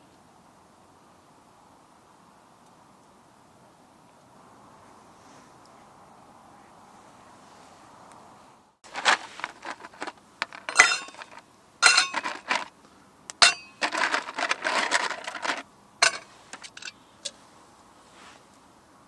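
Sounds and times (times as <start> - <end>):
dishes and utensils clattering: 10.5 - 12.6.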